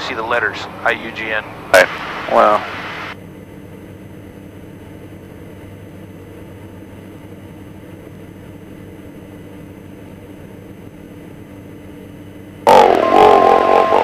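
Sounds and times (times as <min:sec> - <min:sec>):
aircraft engines droning: 0:00.0 - 0:14.0.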